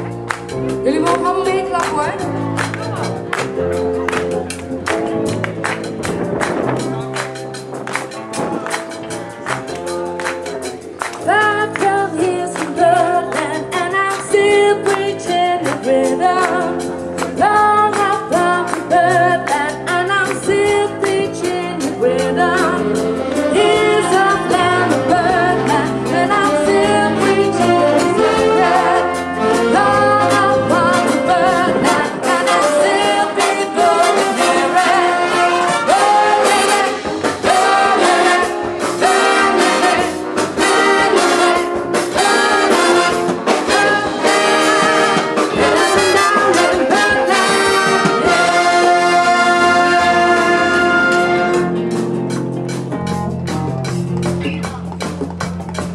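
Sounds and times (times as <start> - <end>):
steady drum beat: 0.0 - 55.9
brass section playing chords: 22.8 - 54.4.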